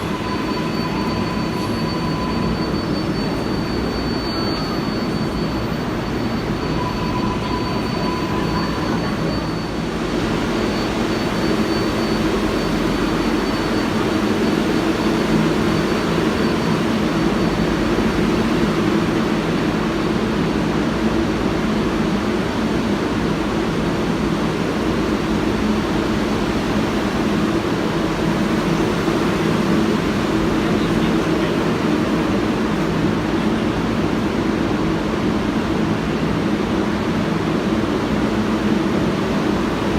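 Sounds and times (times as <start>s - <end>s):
thin high whine: 0.0s - 19.6s
subway train rumble: 0.0s - 39.9s.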